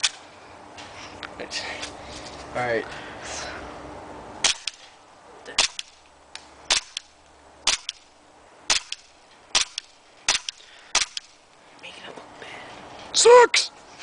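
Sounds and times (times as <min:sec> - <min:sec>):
airsoft pistol shots: 0:04.4 - 0:04.9, 0:05.6 - 0:06.0, 0:06.7 - 0:08.1, 0:08.7 - 0:11.4.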